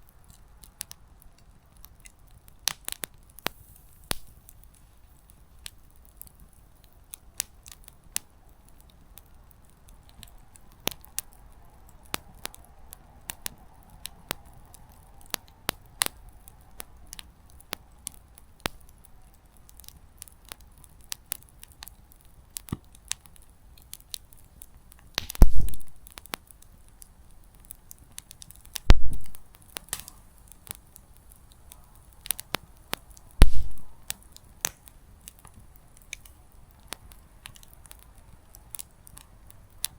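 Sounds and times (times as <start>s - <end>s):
burning firewood snapping: 0.0s - 39.9s
campfire crackling: 0.0s - 39.9s
loud pops with low thump: 25.2s - 26.0s, 28.9s - 29.4s, 33.4s - 33.9s.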